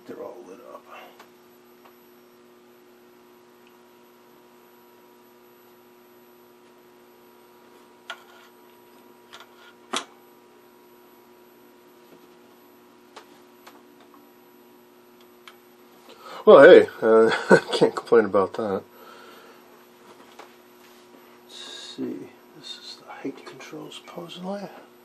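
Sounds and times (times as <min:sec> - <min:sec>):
steady electrical hum: 0:00.0 - 0:25.0
thin high-pitched whine: 0:00.1 - 0:02.5.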